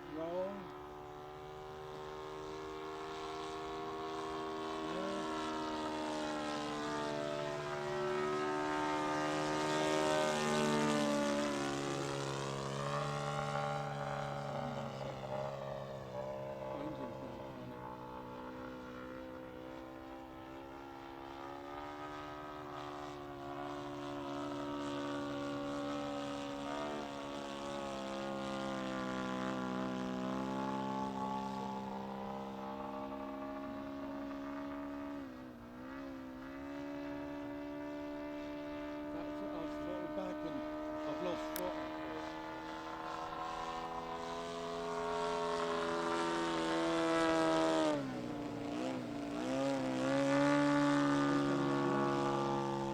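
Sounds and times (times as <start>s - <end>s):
model plane engine drone: 0.0s - 52.9s.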